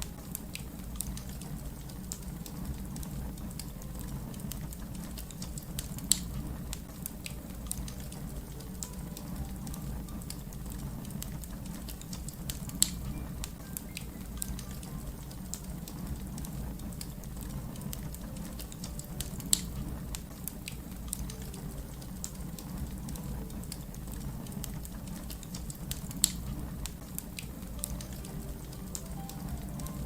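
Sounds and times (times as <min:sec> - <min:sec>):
wood fire crackling: 0:00.0 - 0:30.0
sharp fire pops: 0:04.4 - 0:08.3, 0:11.2 - 0:14.1.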